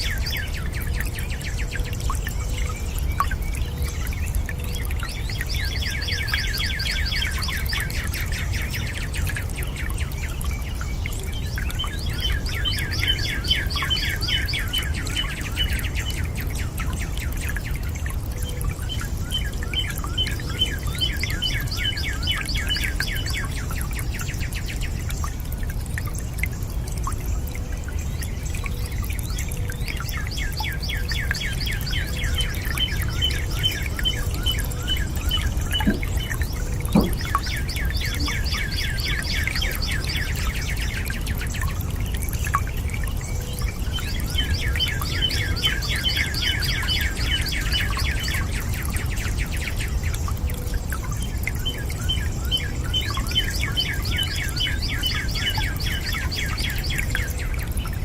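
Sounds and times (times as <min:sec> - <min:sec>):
bird singing a fast trill: 0:28.4 - 0:41.3, 0:43.2 - 0:50.3.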